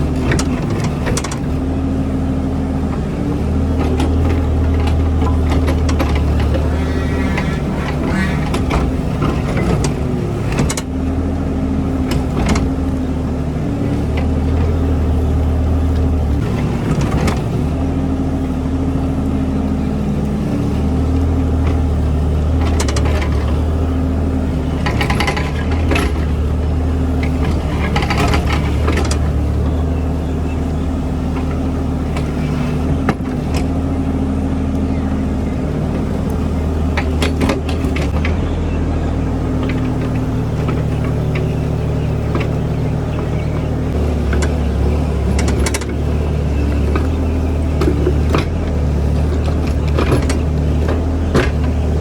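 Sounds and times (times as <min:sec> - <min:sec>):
diesel engine working: 0:00.0 - 0:52.0.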